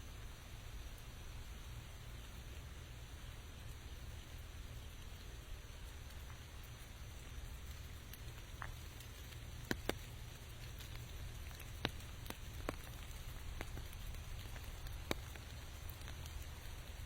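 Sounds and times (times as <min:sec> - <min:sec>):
light rain hiss: 0:00.0 - 0:17.0
raindrops ticking: 0:00.0 - 0:17.0.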